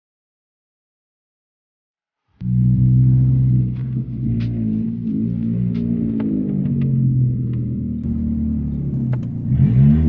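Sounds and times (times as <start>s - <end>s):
car engine low drone: 2.4s - 10.0s.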